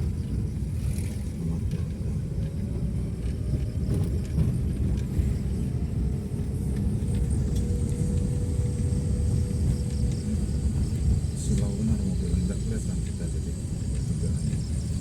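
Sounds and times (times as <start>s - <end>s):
vehicle engine and tyres rumbling: 0.0s - 15.0s.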